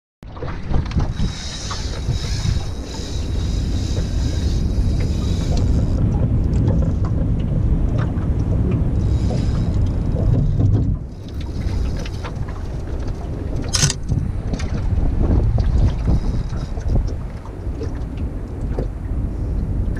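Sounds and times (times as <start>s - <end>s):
wind buffeting microphone: 0.3s - 19.9s
sharp click: 13.7s - 14.2s.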